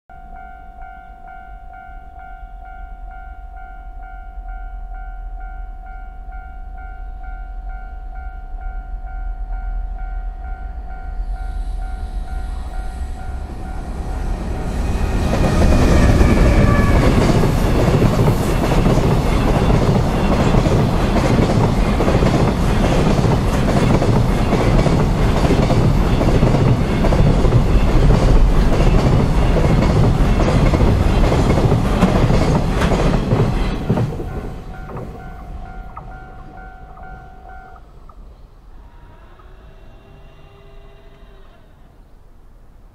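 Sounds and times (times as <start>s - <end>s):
level crossing warning bell: 0.1s - 14.4s, 34.3s - 38.0s
freight train passing: 0.2s - 42.9s.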